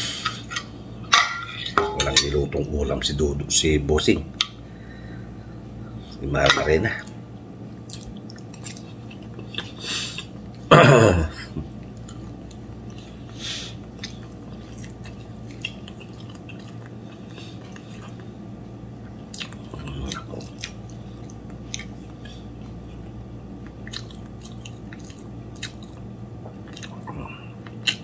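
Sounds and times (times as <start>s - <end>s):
low steady hum: 0.0s - 28.0s
person chewing food: 7.1s - 10.7s, 11.6s - 28.0s.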